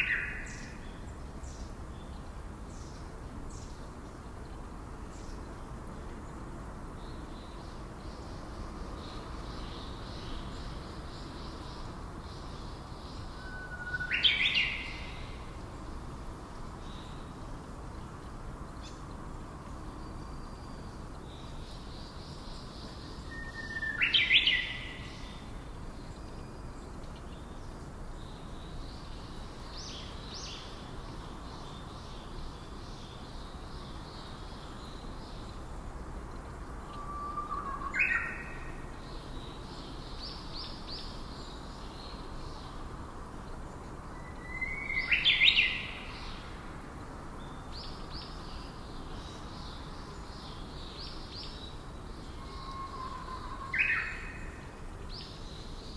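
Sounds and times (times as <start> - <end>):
steady background hiss: 0.0 - 55.9
loud whistled bird calls: 23.3 - 25.2, 36.9 - 38.7, 52.3 - 54.5.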